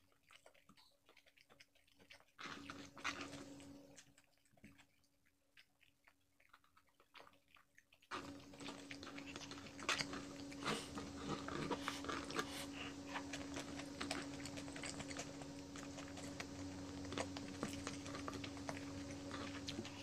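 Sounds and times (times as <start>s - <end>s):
person chewing: 0.0s - 20.0s
steady low hum: 8.1s - 20.0s.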